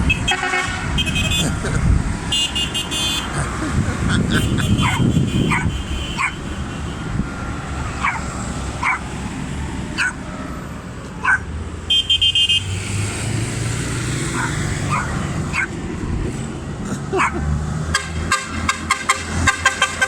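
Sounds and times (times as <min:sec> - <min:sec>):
horn beeping: 0:00.0 - 0:07.4, 0:11.9 - 0:12.9, 0:17.9 - 0:20.0
tractor engines rumbling: 0:00.0 - 0:20.0
dog barking: 0:04.4 - 0:06.4, 0:08.0 - 0:09.1, 0:10.0 - 0:10.2, 0:11.2 - 0:11.5, 0:14.4 - 0:15.8, 0:17.2 - 0:17.5.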